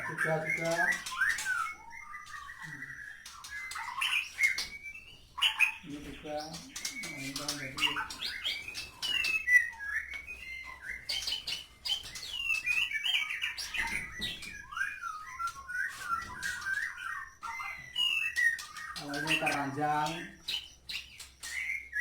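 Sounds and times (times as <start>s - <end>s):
birds singing whistles and chirps: 0.0s - 22.0s
sharp clicking bird notes: 5.5s - 22.0s.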